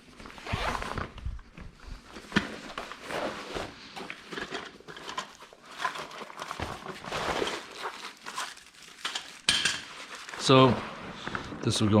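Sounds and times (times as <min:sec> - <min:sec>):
packaging rustling: 0:00.0 - 0:11.6
parts knocking and clattering: 0:04.0 - 0:07.5, 0:08.3 - 0:10.0.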